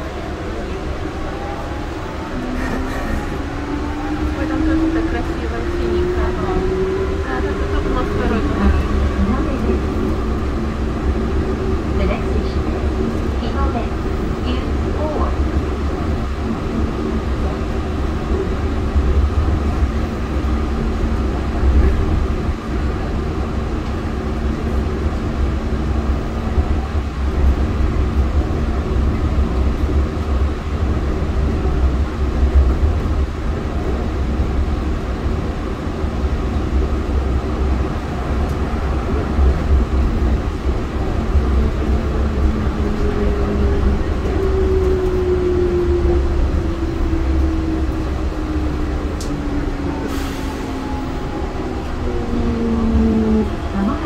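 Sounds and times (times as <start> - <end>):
train rumble with motor hum: 0.0 - 54.0
train whine sliding down: 41.7 - 54.0.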